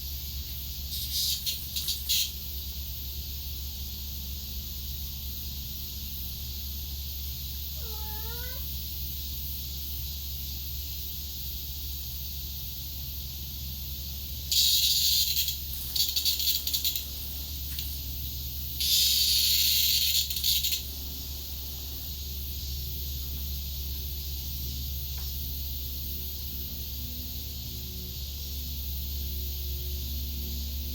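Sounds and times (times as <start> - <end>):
cicada buzzing squawks: 0.4 - 2.6, 7.6 - 8.8, 14.2 - 24.8.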